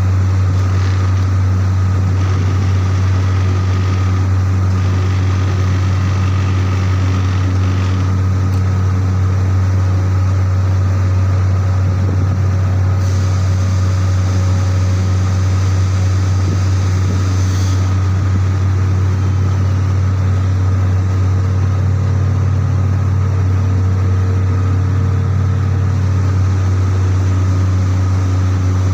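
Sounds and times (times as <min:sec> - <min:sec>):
heavy machinery humming: 0:00.0 - 0:28.9.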